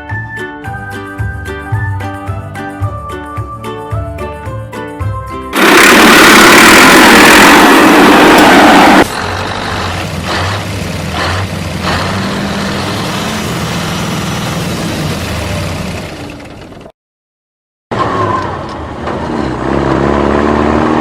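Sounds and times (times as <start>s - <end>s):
loud rushing noise: 5.6s - 10.7s.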